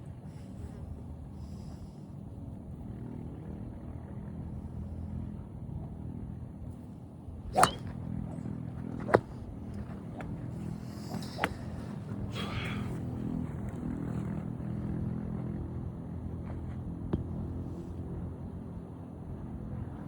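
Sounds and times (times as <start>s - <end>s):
golf clubs striking balls: 7.5s - 11.9s.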